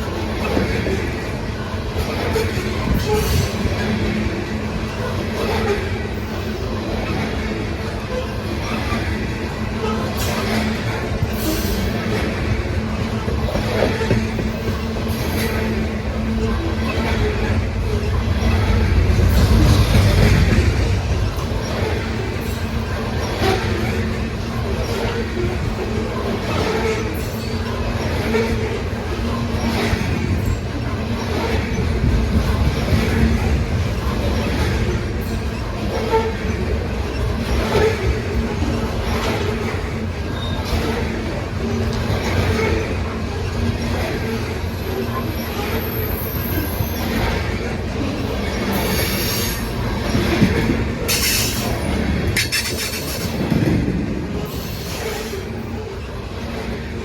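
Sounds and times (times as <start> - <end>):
train wheels rumbling on rails: 0.0 - 57.0
wheel squeal: 51.1 - 53.6.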